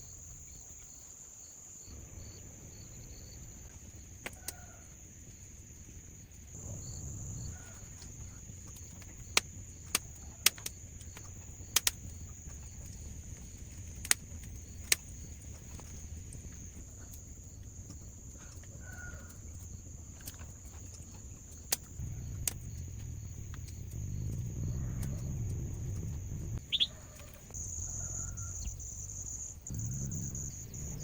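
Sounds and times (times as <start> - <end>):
insects buzzing: 0.0 - 31.0
low rumble: 6.5 - 9.8, 21.9 - 26.7, 28.5 - 31.0
bird chirps: 26.6 - 27.0.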